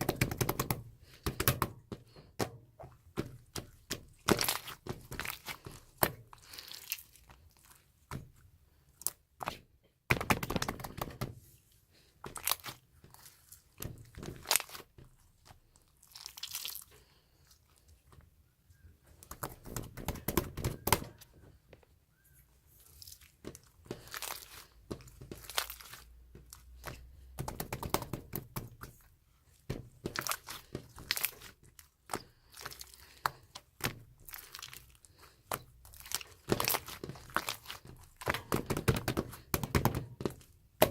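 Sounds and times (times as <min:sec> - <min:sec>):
slime squishing and popping: 0:03.0 - 0:07.3, 0:29.7 - 0:40.9.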